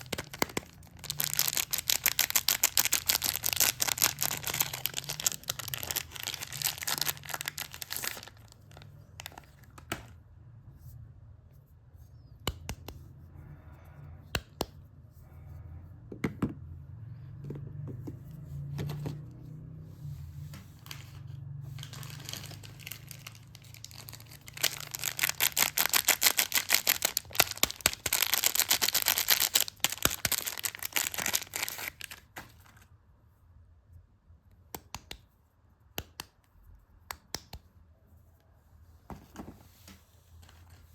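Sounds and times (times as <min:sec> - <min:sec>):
packaging crinkling and tearing: 0:00.0 - 0:09.8, 0:21.8 - 0:32.8.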